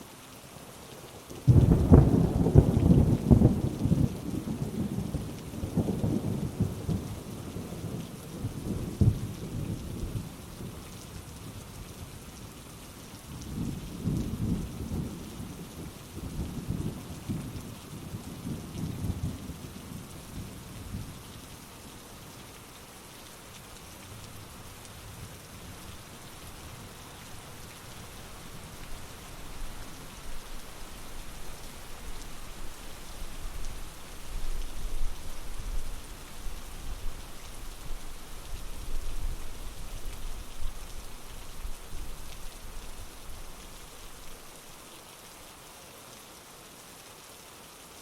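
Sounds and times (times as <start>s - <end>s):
heavy rain falling: 0.0s - 48.0s
low rumble of thunder: 1.5s - 10.7s, 13.4s - 21.3s.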